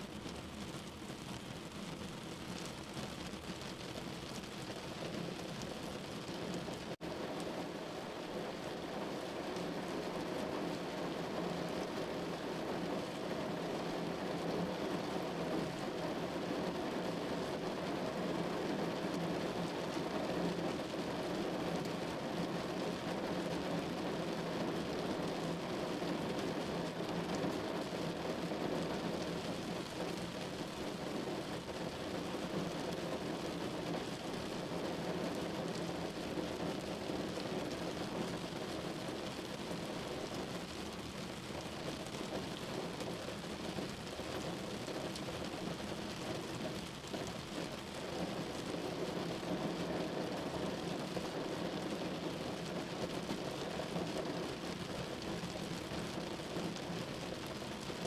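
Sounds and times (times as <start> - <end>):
rain on window glass: 0.0 - 58.0.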